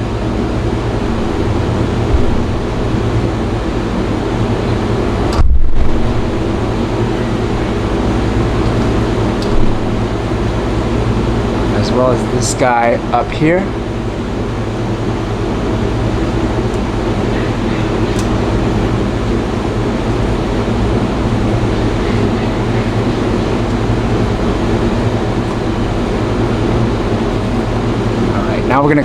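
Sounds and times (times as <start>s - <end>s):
constant rushing noise: 0.0s - 14.5s
mechanical hum: 0.0s - 29.0s.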